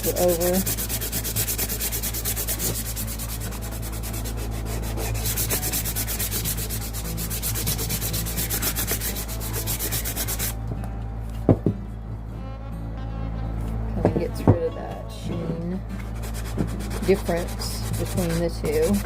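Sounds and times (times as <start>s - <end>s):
sandpaper rubbing on wood: 0.0s - 10.6s, 16.1s - 19.0s.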